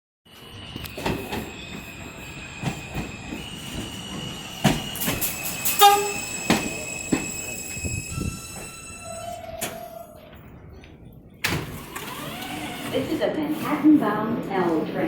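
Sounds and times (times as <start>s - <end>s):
subway train squealing: 0.3s - 10.8s
train clanks and knocks: 0.4s - 10.0s.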